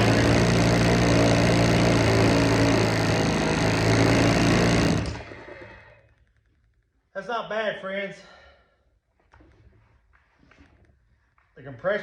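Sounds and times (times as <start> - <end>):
chainsaw engine running: 0.0 - 5.9.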